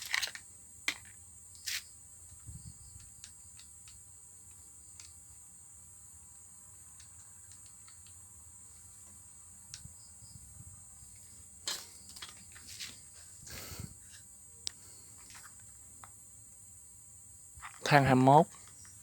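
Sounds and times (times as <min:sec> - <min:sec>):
crickets chirring: 0:00.0 - 0:19.0
faint small clicks: 0:04.9 - 0:05.2.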